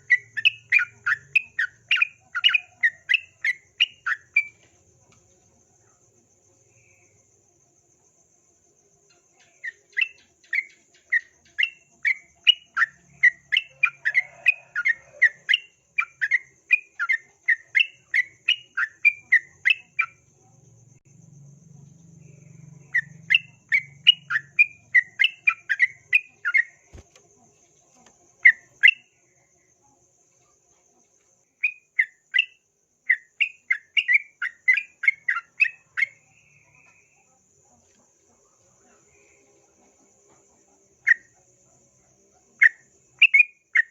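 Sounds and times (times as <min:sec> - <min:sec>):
faint low hum: 0:18.3 - 0:33.8, 0:34.4 - 0:43.1.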